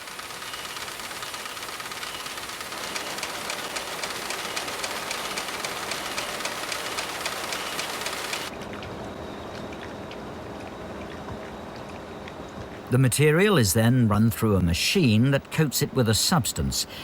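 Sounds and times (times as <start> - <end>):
weaving loom clacking: 0.0 - 8.5.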